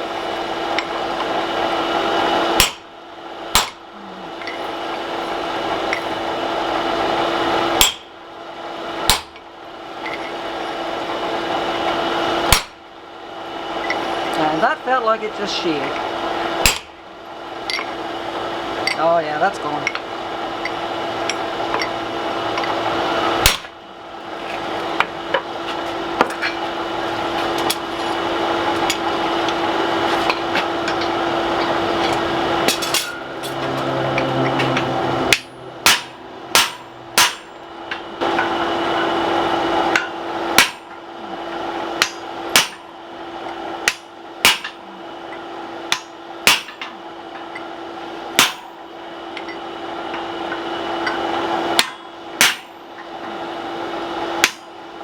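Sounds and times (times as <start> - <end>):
steady hum: 0.0 - 55.0
hammer striking punch on anvil: 2.6 - 2.8, 3.5 - 3.8, 7.8 - 8.1, 9.1 - 9.4, 12.5 - 12.8, 16.6 - 16.9, 23.4 - 23.7, 34.7 - 37.6, 39.9 - 41.0, 42.0 - 42.9, 43.8 - 44.8, 45.9 - 46.9, 48.4 - 48.8, 51.8 - 52.8, 54.4 - 54.6.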